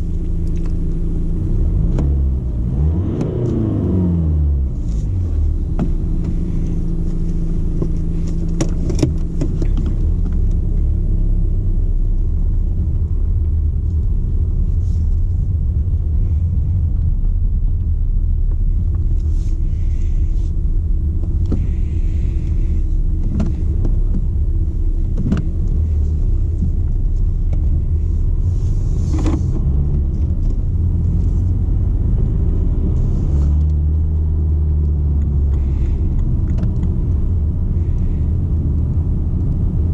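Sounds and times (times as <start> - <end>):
car engine rumble inside cabin: 0.0 - 39.9.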